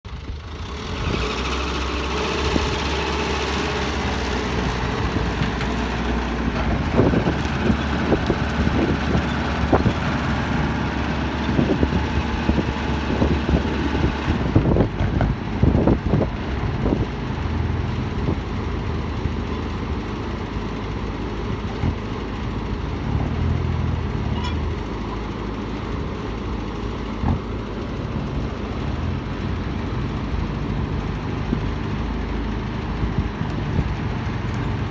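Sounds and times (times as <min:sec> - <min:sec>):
excavator diesel engine running: 0:00.0 - 0:34.9
knocks and clatters: 0:14.0 - 0:15.6.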